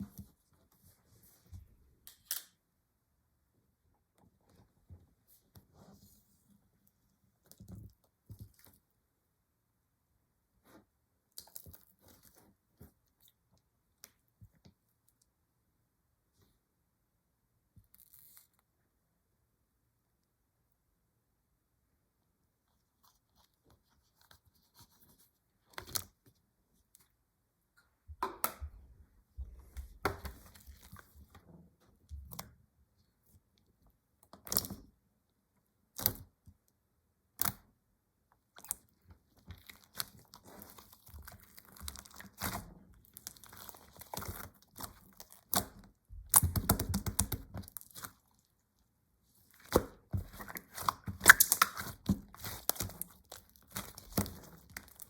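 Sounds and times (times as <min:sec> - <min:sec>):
slime popping and crackling: 0:39.6 - 0:48.3, 0:49.5 - 0:55.0.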